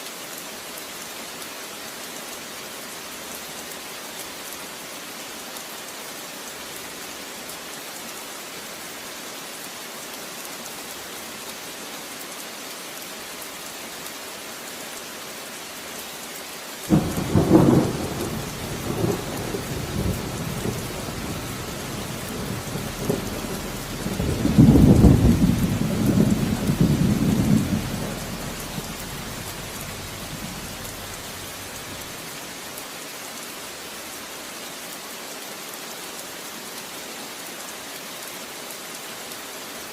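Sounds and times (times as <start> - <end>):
steady rain falling: 0.0 - 39.9
thunder rumbling: 16.9 - 32.1.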